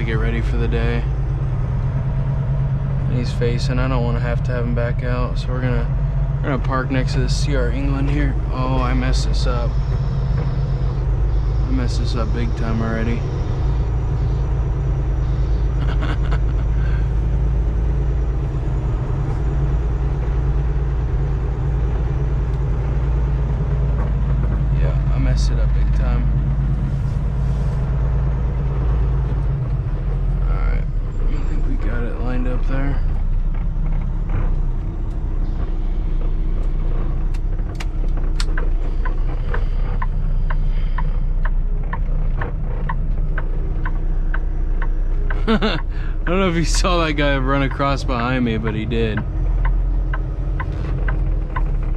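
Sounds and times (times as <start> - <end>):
diesel truck engine rumbling: 0.0 - 51.9
backup alarm beeping: 7.0 - 16.6
sharp clicks: 33.1 - 45.9, 47.1 - 51.9.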